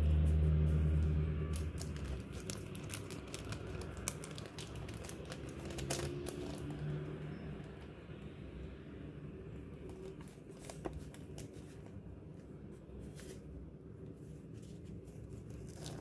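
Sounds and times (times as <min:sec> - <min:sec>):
packaging crinkling: 0:01.5 - 0:07.0, 0:15.2 - 0:16.0.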